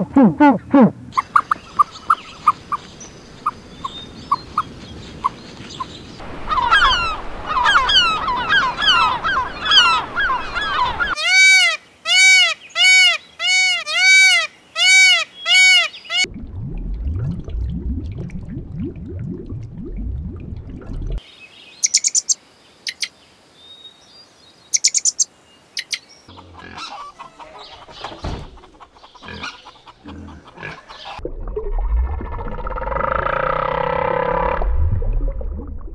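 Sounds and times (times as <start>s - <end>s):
peacock honking calls: 6.3s - 16.2s, 26.3s - 31.2s
low rumbling: 16.3s - 21.2s, 31.2s - 35.9s.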